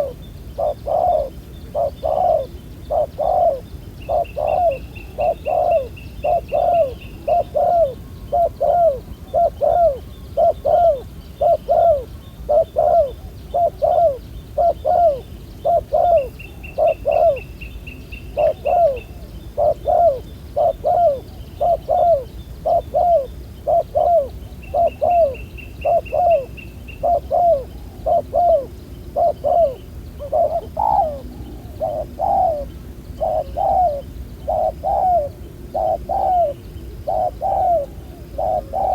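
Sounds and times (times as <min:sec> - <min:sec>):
doves cooing: 0:00.0 - 0:17.5, 0:18.3 - 0:38.9
high bird trill: 0:00.0 - 0:17.5.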